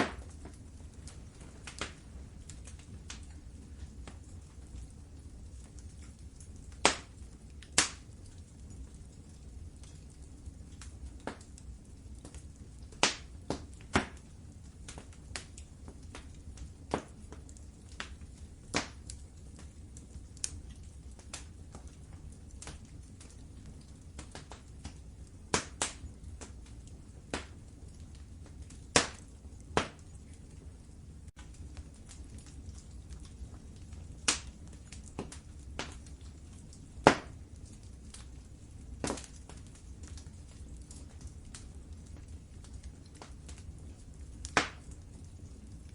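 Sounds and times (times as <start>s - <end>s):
low fire rumble: 0.0s - 45.9s
wood fire crackling and popping: 0.0s - 45.9s.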